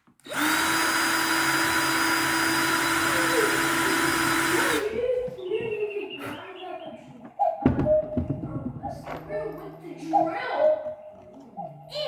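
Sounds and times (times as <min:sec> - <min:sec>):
power tool grinding screw: 0:00.2 - 0:05.0.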